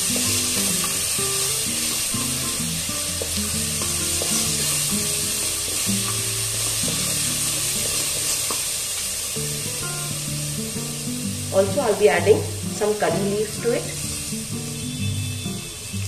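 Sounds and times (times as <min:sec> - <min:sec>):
garlic paste sizzling in hot oil: 0:00.0 - 0:16.0
wooden spatula stirring in pan: 0:03.2 - 0:08.7.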